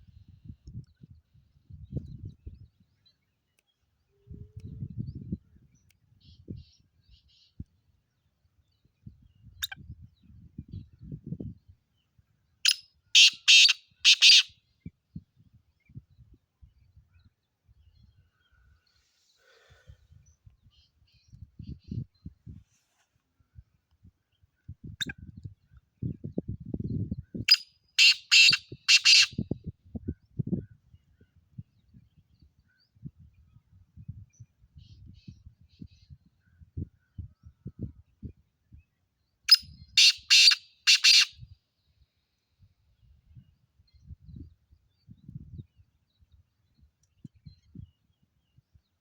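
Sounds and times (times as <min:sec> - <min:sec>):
partridge rasping call: 0:12.7 - 0:14.5, 0:28.0 - 0:29.3, 0:39.5 - 0:41.3.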